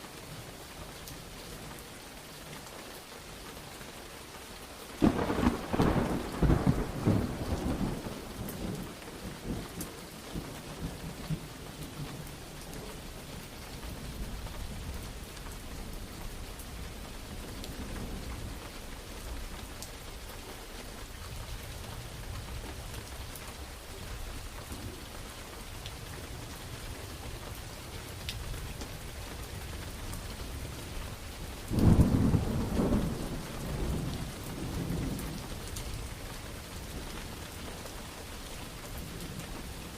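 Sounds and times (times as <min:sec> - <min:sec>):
steady rain: 0:00.0 - 0:39.9
thunderclaps: 0:05.0 - 0:09.8, 0:31.6 - 0:35.4.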